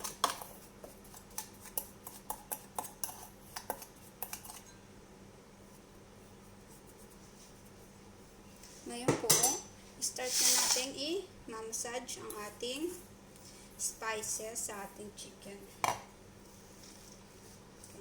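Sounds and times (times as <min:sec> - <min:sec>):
spoon clinking against bowl: 0:09.3 - 0:09.7.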